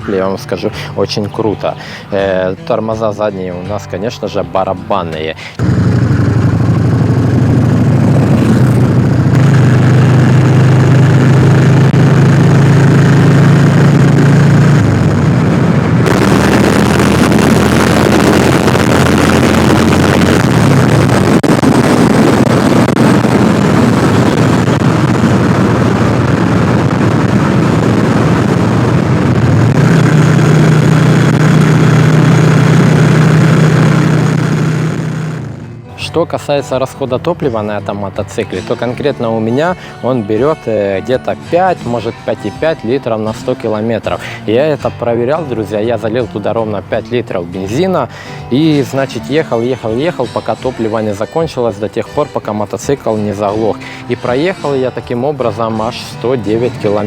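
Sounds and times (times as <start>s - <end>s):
motorcycle engine running: 5.6s - 35.9s.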